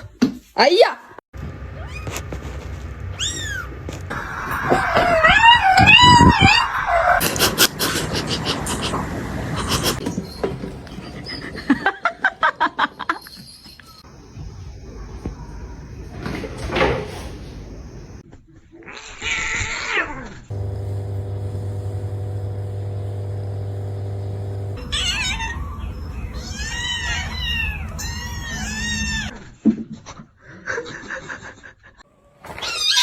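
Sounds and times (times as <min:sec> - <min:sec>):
cat meowing: 0:04.5 - 0:06.7, 0:24.8 - 0:29.3
steady low buzz: 0:20.5 - 0:26.4.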